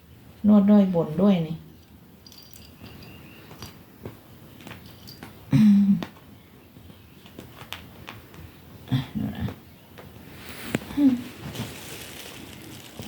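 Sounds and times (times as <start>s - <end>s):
soft taps and rustles: 3.4s - 8.8s, 9.4s - 13.0s.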